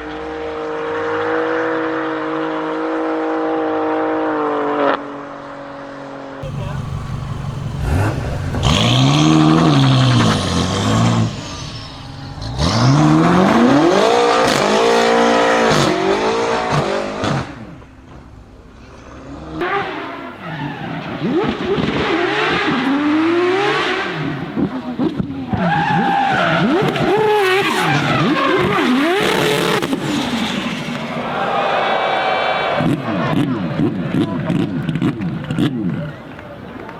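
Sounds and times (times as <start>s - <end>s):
car engines revving hard: 6.4s - 31.8s.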